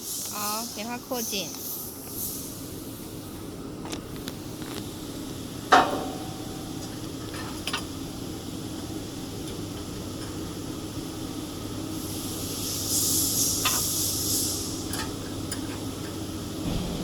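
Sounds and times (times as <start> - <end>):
hiss: 0.0 - 3.5, 11.8 - 15.3
steady low hum: 2.5 - 11.9, 16.4 - 17.0.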